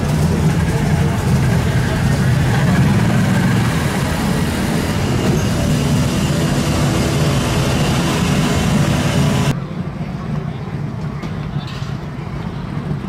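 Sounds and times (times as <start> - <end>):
loud car engine idling: 0.0 - 9.5.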